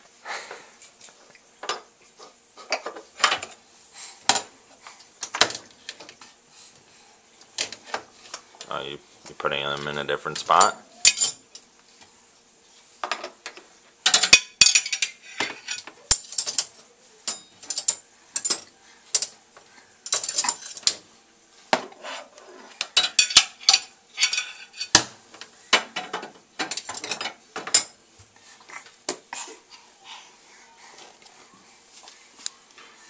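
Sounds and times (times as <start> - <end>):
dishes clattering in a rack: 13.0 - 19.3, 20.0 - 21.0, 22.8 - 28.0.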